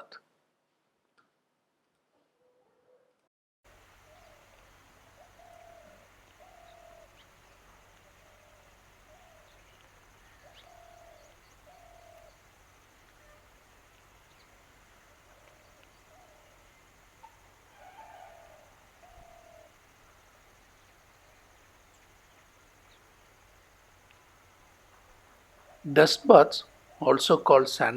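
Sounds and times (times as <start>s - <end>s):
low hum and hiss: 3.7s - 27.9s
faint high chirps: 3.8s - 27.7s
bird hooting: 3.9s - 21.0s, 24.9s - 27.2s.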